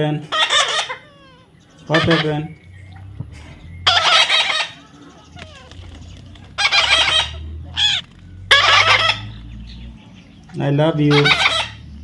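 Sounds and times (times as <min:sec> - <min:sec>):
parrot squawking: 0:00.2 - 0:03.1, 0:03.8 - 0:09.6, 0:11.0 - 0:12.0
shrill parrot call: 0:00.3 - 0:03.0, 0:03.8 - 0:05.8, 0:06.6 - 0:09.4, 0:11.1 - 0:11.8.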